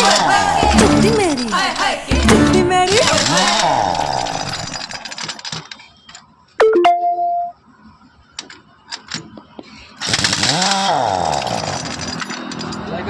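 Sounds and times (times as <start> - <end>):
power tool burst: 10.0 - 12.0.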